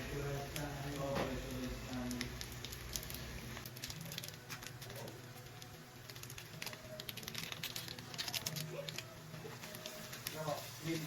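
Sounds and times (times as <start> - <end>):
food crackling in hot oil: 0.0 - 11.0.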